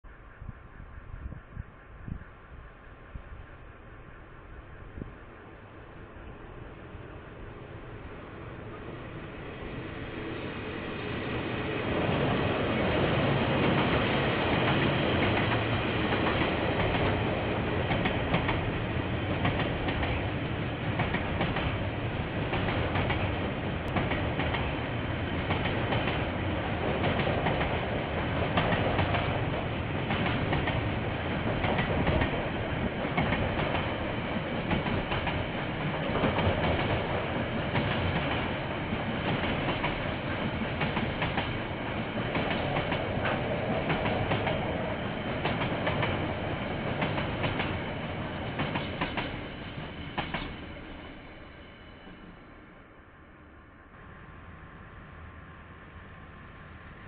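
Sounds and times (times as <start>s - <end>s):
train wheels clicking over rail joints: 13.5s - 50.9s.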